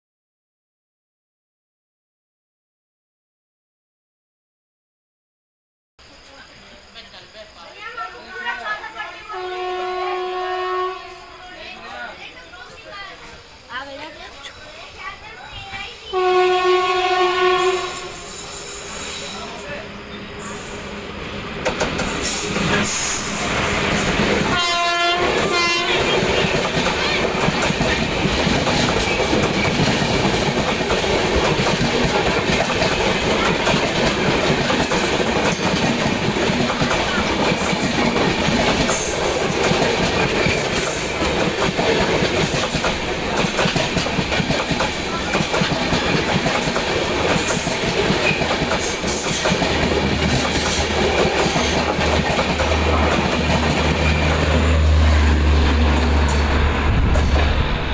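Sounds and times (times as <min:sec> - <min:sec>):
train wheels rumbling on rail: 0:07.6 - 0:57.9
train horn blasts: 0:09.3 - 0:11.4, 0:16.1 - 0:18.5, 0:24.4 - 0:26.4.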